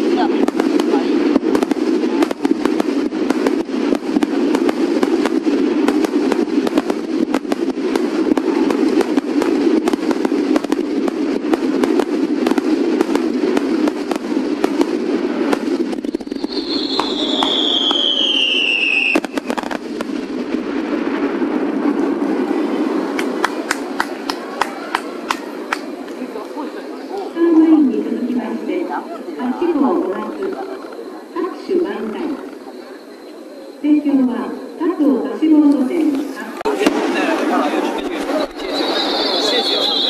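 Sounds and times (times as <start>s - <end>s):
steady rushing noise: 0.0s - 18.1s
fireworks crackling pops: 0.0s - 27.3s, 30.0s - 33.3s, 35.6s - 40.0s
falling whistle: 16.1s - 19.4s, 38.2s - 40.0s.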